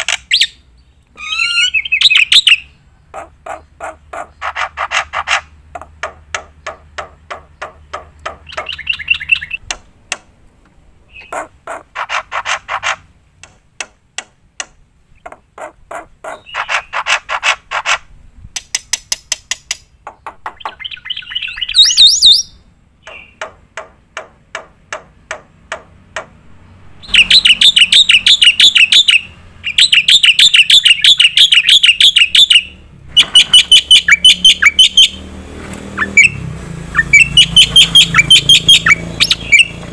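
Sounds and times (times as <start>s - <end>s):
fast bird trilling: 1.2s - 7.8s, 8.4s - 9.6s, 15.6s - 18.0s, 20.4s - 23.4s, 26.8s - 35.3s, 35.9s - 39.8s.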